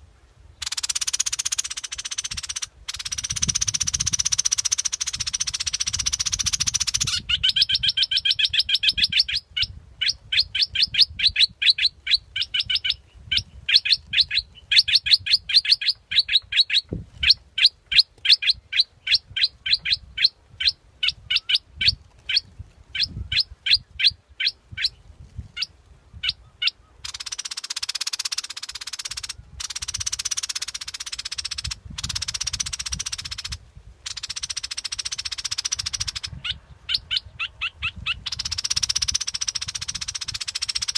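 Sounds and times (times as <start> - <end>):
bird whistling calls: 0.6 - 16.8, 26.2 - 40.9.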